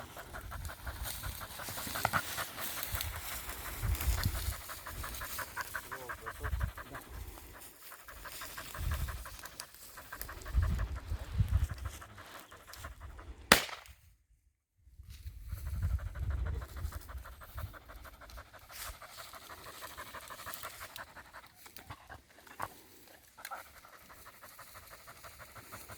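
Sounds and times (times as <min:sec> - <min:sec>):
dog panting: 0:00.0 - 0:13.4, 0:15.6 - 0:25.9.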